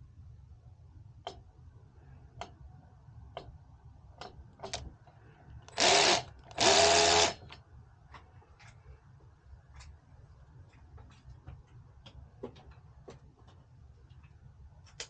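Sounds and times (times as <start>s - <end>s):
electric screwdriver whine: 5.8s - 7.4s.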